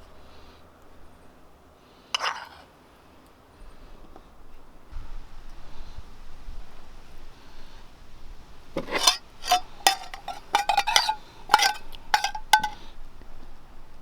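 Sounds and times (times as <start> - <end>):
metal utensils clinking on dishes: 8.8 - 12.8.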